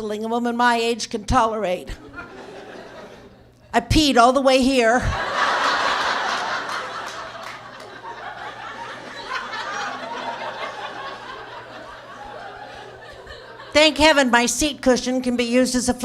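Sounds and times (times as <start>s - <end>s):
audience laughing: 2.0s - 3.4s, 5.1s - 14.2s.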